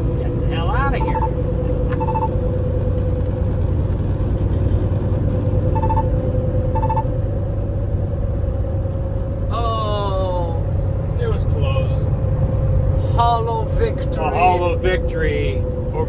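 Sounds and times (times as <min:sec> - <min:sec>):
truck engine and road noise: 0:00.0 - 0:16.0
short electronic beeps: 0:00.9 - 0:02.4, 0:05.7 - 0:07.1.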